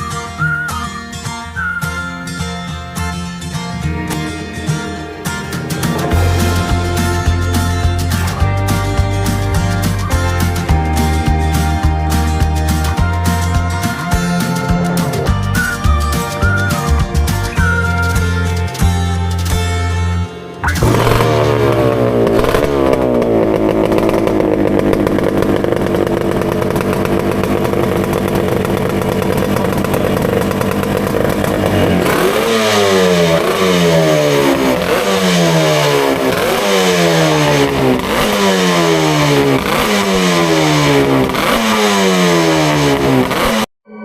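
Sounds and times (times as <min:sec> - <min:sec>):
two-stroke motorcycle engine revving: 0:03.2 - 0:15.7, 0:20.6 - 0:43.7.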